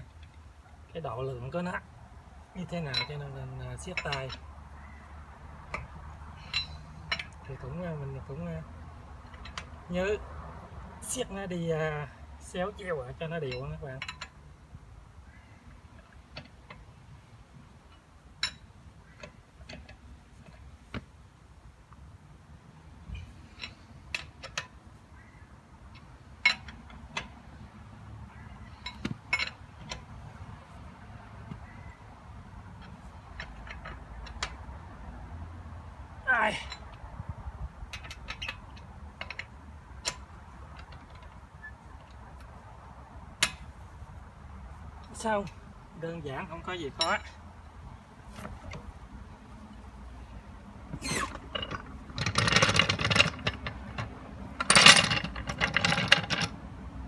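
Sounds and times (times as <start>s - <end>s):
lug wrench clicking on nuts: 37.8s - 42.5s, 51.2s - 56.6s.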